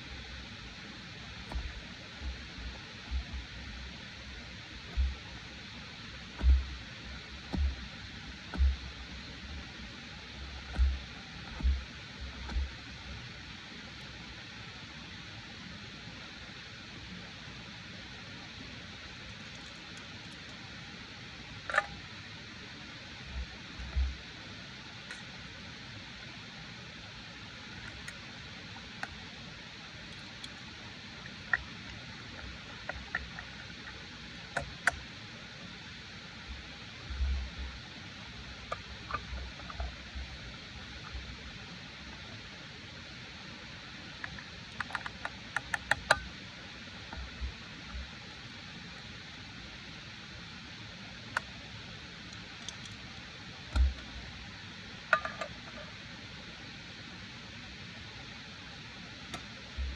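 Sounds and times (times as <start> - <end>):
rain hiss: 0.0 - 59.9
dull low thump: 6.4 - 6.8, 7.5 - 7.8, 8.6 - 8.9.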